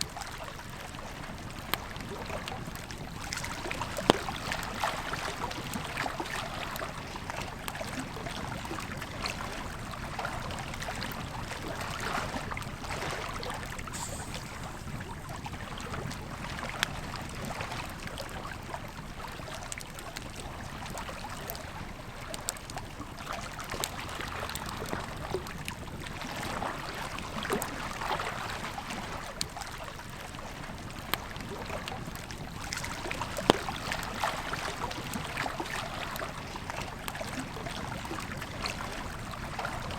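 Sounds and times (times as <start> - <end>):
river flowing: 11.5 - 16.8
campfire crackling and popping: 13.6 - 17.2.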